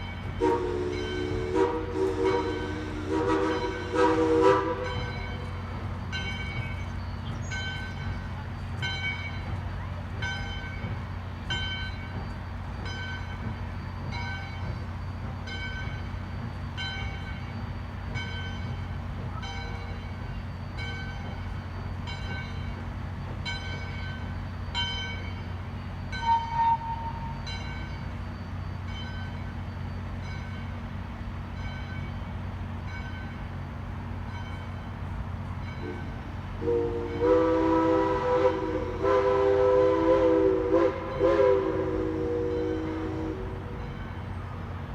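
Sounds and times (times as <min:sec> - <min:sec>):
locomotive bell ringing: 0:00.0 - 0:44.9.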